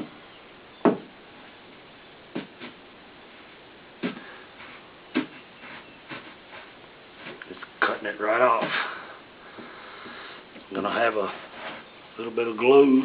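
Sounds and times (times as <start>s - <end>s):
twine rubbing through adhesive: 2.3s - 11.9s.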